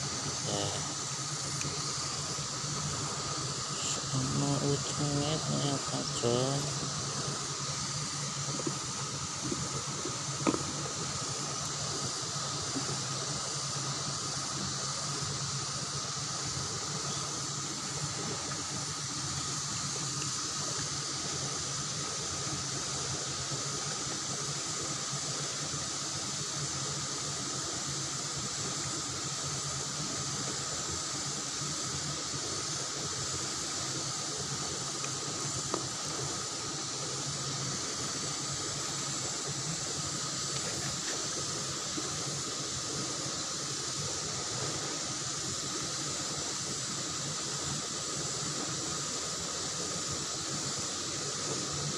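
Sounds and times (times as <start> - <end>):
high drone: 0.0 - 20.2
fast-flowing river water: 0.0 - 51.9.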